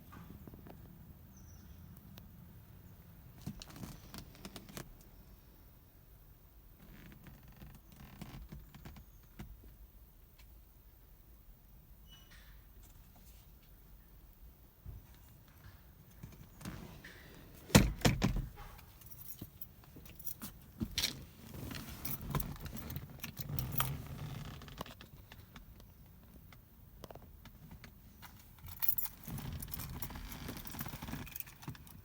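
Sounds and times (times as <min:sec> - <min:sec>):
keys jangling: 0:18.2 - 0:20.6, 0:21.7 - 0:24.0, 0:28.6 - 0:32.0.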